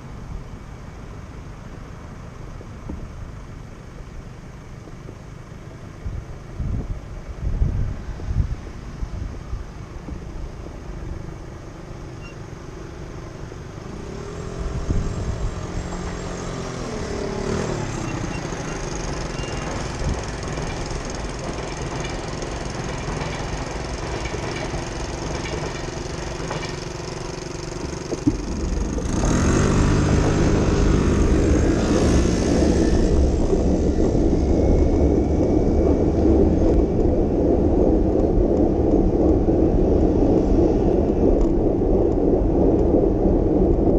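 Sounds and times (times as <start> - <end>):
engine low rumble: 0.0 - 43.9
vehicle passing by: 13.8 - 21.2, 27.2 - 43.9.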